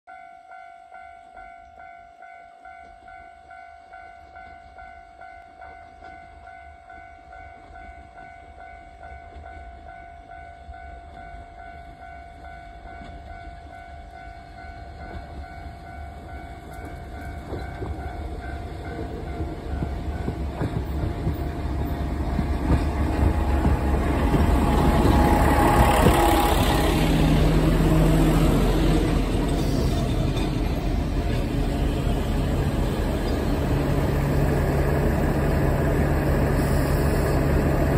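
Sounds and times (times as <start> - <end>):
diesel railcar engine: 3.0 - 37.9
wheels on rails: 10.7 - 37.9.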